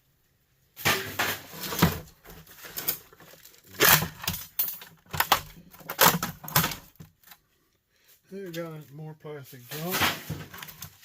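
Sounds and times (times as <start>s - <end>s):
plastic parts clattering: 0.8s - 7.4s, 9.7s - 11.0s
plastic parts scraping: 0.8s - 7.5s, 9.7s - 11.0s.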